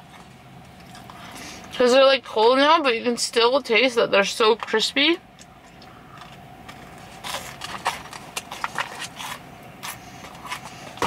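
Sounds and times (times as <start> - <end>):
chewing crispy donuts: 0.0 - 1.8, 5.2 - 11.0.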